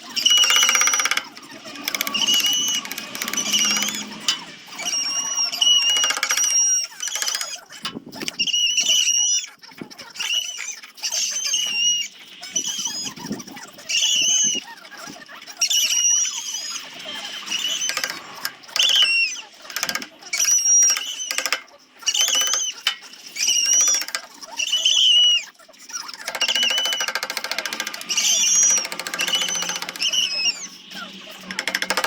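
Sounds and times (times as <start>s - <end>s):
power sander squealing and buzzing: 0.0s - 32.0s.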